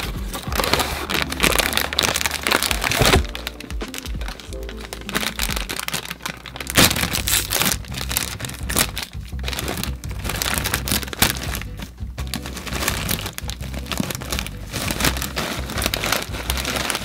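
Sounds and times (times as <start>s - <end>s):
background music: 0.0s - 17.0s
snack packet crinkling: 0.0s - 17.0s.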